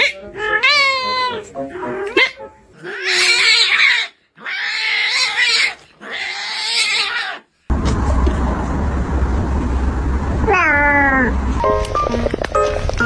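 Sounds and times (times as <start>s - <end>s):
cat crying: 0.0s - 7.4s
cat hissing: 0.0s - 7.5s.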